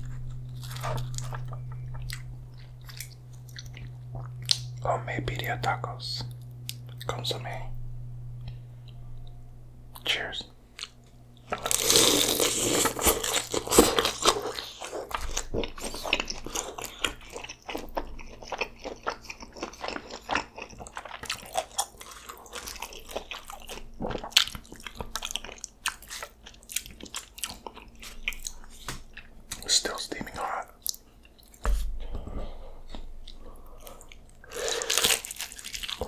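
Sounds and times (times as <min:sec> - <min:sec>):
wet chewing with crunches: 0:00.0 - 0:07.3, 0:10.7 - 0:36.0
crunchy bite into taco: 0:10.8 - 0:29.7, 0:34.4 - 0:36.0.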